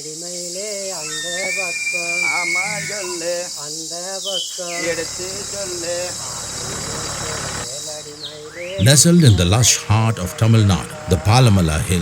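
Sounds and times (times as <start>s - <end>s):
broad hiss: 0.0s - 10.8s
crickets chirring: 0.0s - 12.0s
person's voice: 4.7s - 12.0s.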